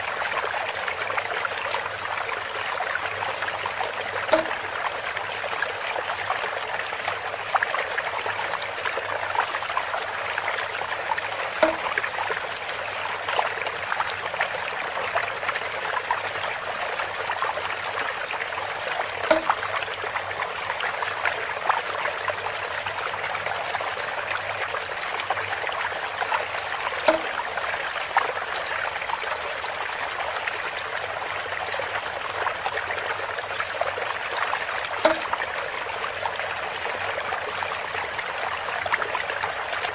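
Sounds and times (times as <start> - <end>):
water trickling through bamboo spout: 0.0 - 39.9
knock with pitched ring: 4.3 - 4.6, 11.6 - 12.0, 19.2 - 19.6, 27.1 - 27.3, 35.0 - 35.3.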